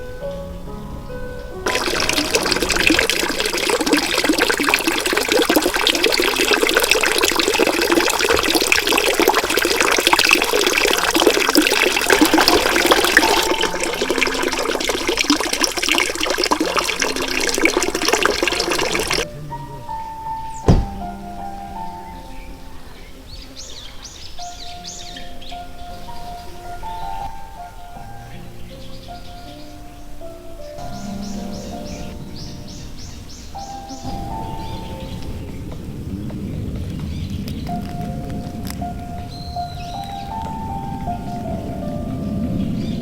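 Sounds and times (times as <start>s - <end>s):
running splashing water: 1.6s - 22.0s
faint background music: 16.2s - 43.0s.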